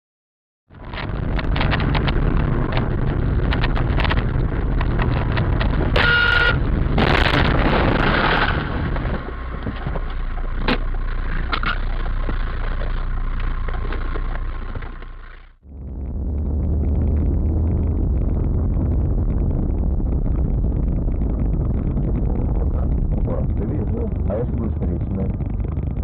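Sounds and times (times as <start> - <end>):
car road and engine noise: 0.7 - 26.0
loud rushing noise: 0.8 - 10.6
car horn honk: 6.0 - 6.6.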